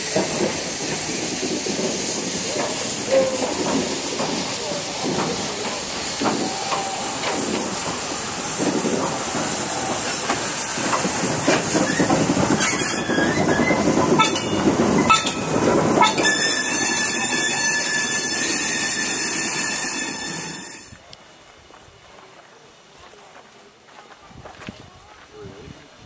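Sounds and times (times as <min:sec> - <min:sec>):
steady hiss: 0:00.0 - 0:20.4
steam freight train rolling: 0:00.0 - 0:21.0
wheels clacking over rail joints: 0:00.0 - 0:21.0.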